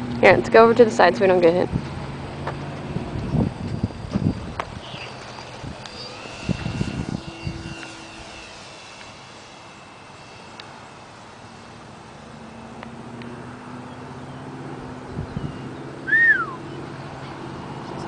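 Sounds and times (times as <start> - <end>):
model airplane motor whining: 0.0 - 18.0.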